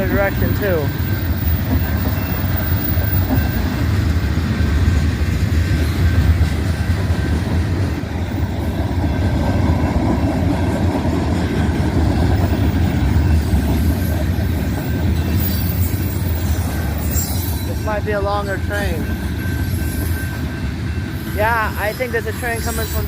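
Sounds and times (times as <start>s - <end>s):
freight train wheels rumbling: 0.0s - 23.0s.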